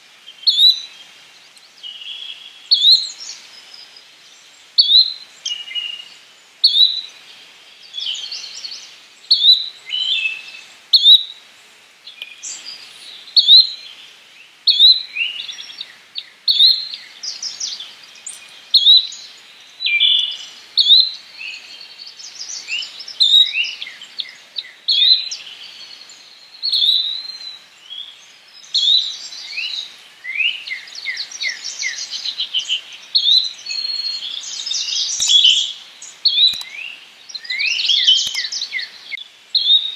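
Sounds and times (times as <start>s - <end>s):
bird chirps: 14.7s - 39.9s.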